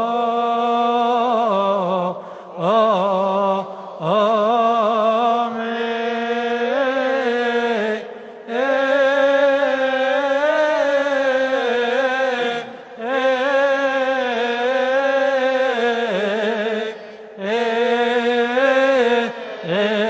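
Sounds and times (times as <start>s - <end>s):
man chanting: 0.0s - 20.0s
man breathing: 2.2s - 2.6s, 8.1s - 8.5s, 17.0s - 17.4s.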